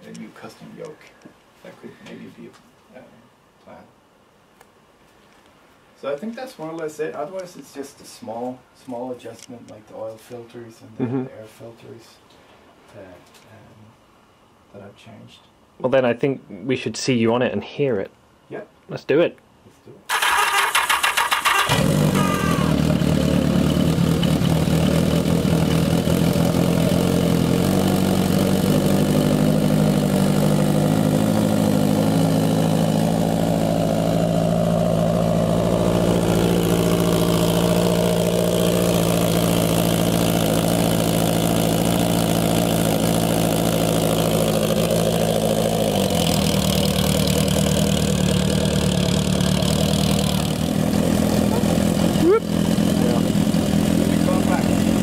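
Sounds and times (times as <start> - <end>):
motorcycle engine starting and idling: 20.1 - 55.0.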